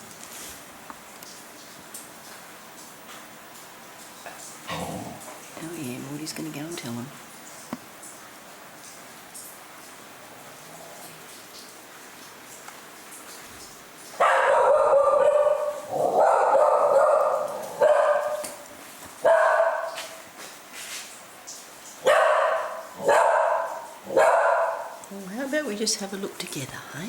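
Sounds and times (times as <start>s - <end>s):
dog barking: 14.2s - 18.6s, 19.2s - 20.2s, 22.0s - 25.0s.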